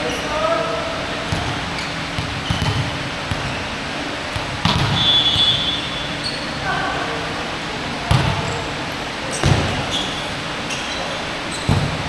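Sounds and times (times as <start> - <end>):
sneakers squeaking: 0.0 - 7.3, 8.0 - 12.0
hall noise: 0.7 - 9.3
basketball bouncing on court: 1.1 - 6.6, 8.0 - 8.7, 9.4 - 10.0, 11.6 - 12.0.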